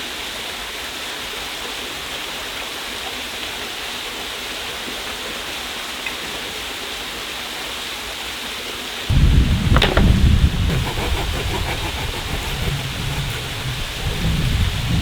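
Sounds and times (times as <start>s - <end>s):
deep rumble: 9.1s - 15.0s.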